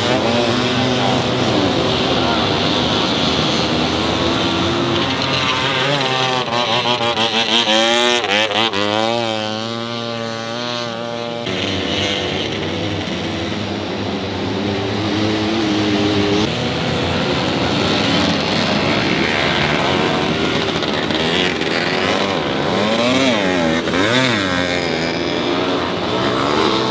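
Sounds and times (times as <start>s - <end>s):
motorbike engines in background: 0.0s - 26.9s
motorbike revving up and down: 0.0s - 26.9s.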